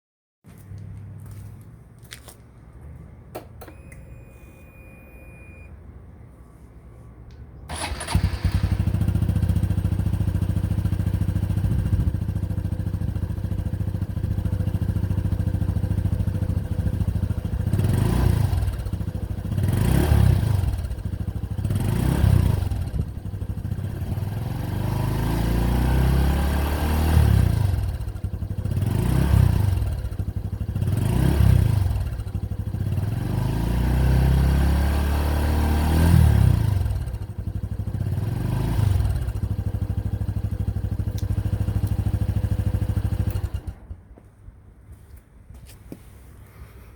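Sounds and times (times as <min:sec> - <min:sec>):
motorcycle engine idling and revving: 0:07.7 - 0:44.5.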